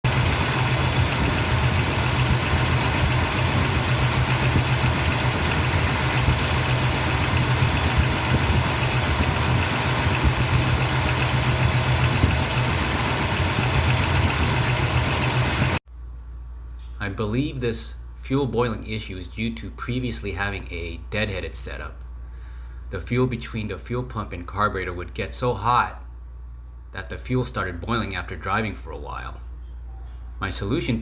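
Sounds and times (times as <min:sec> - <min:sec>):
car engine idling: 0:00.0 - 0:15.8.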